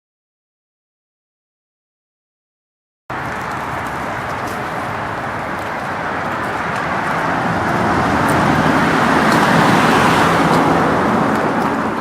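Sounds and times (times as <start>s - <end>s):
car approaching: 3.1s - 12.0s.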